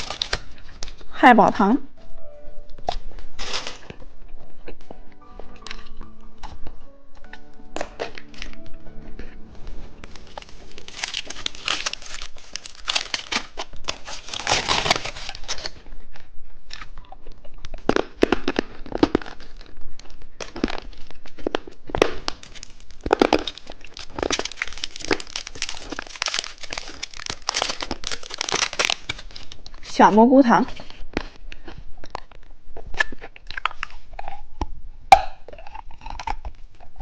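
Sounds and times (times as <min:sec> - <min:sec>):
plastic packaging crinkling: 0:00.0 - 0:01.1, 0:02.7 - 0:06.5, 0:09.8 - 0:30.0.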